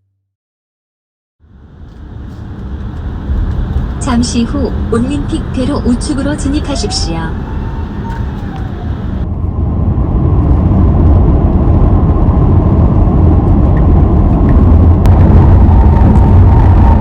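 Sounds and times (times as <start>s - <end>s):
tyres rumbling on road: 1.4s - 17.0s.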